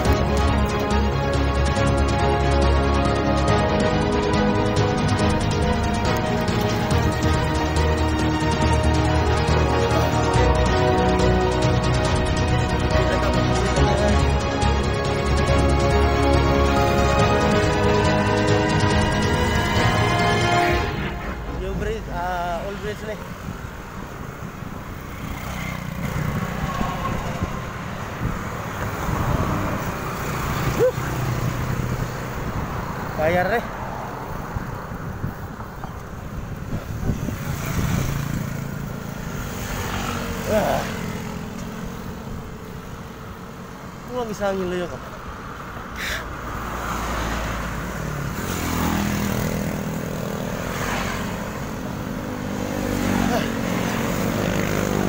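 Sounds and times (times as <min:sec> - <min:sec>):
road traffic noise: 0:00.0 - 0:55.0
vehicle engine humming: 0:00.0 - 0:55.0
low rumble of wind: 0:14.7 - 0:39.5.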